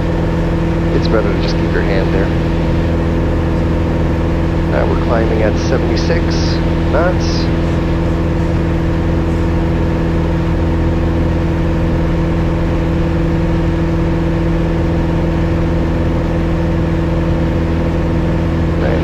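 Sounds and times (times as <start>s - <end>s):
aircraft engine and propeller drone: 0.0s - 19.0s.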